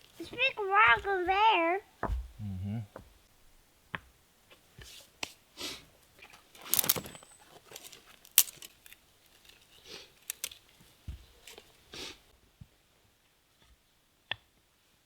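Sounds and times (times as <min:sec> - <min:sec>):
rocks scraping: 0:06.2 - 0:11.7
stones clacking together: 0:06.2 - 0:11.7.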